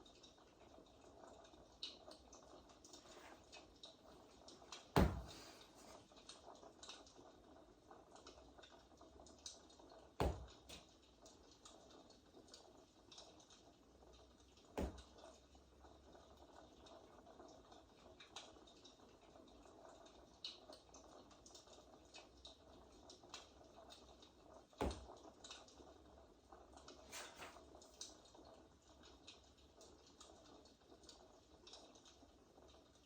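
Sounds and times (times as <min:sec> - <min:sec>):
fireplace crackle: 0:00.0 - 0:33.0
rabbit thumping: 0:05.0 - 0:05.6.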